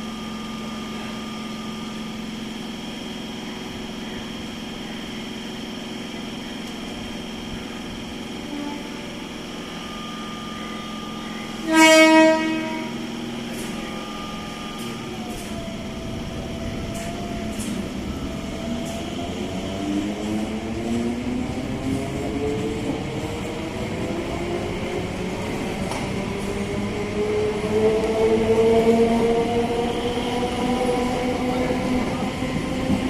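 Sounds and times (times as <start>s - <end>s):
train running with whine: 0.0s - 33.0s
train horn blast: 8.4s - 9.2s, 11.4s - 13.2s.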